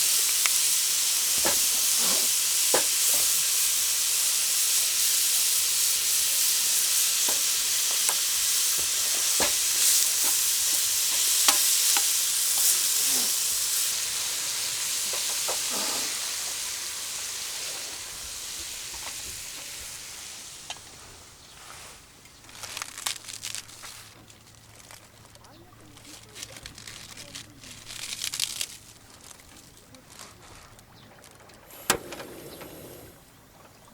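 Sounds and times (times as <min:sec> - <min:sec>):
food sizzling in a pan: 0:00.0 - 0:20.9
oil popping and crackling: 0:00.0 - 0:20.9, 0:22.2 - 0:32.0.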